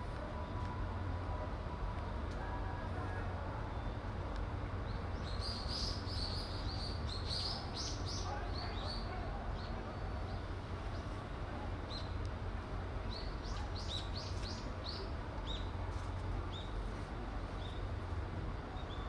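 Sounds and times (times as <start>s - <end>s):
small birds chirping: 13.1s - 15.7s.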